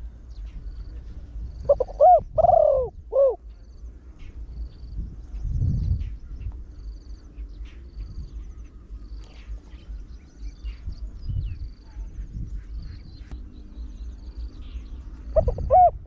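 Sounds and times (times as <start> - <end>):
insects trilling: 0.2 - 16.0
dove cooing: 0.6 - 3.7, 14.4 - 16.0.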